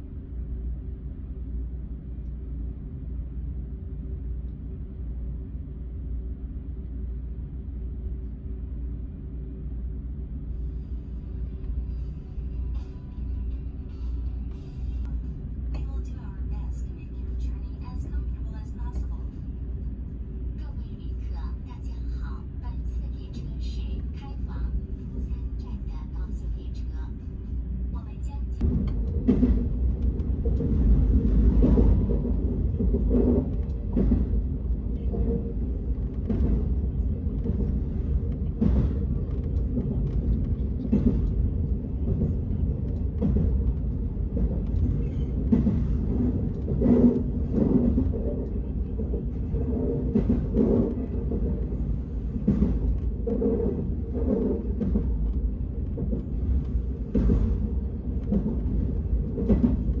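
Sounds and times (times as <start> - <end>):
vehicle rumble: 0.0 - 60.0
knocks and clatters: 28.6 - 35.4, 36.0 - 60.0.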